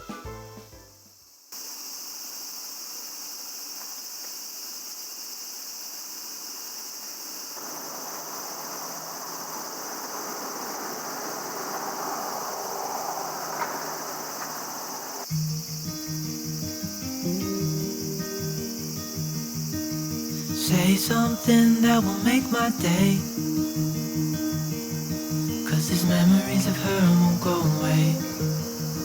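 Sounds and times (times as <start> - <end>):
night insects chirring: 1.1 - 29.0
soft rushing noise: 7.6 - 15.3.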